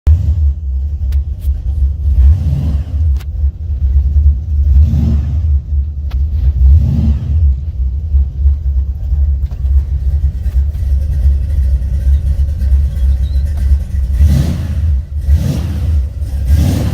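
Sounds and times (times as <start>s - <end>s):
engine rumbling: 0.0s - 16.9s.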